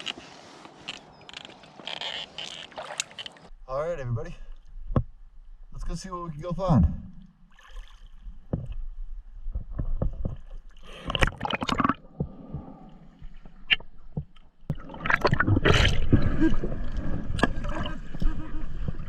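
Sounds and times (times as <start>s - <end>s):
water splashing and gurgling: 1.3s - 3.5s, 6.8s - 8.7s, 9.6s - 19.0s.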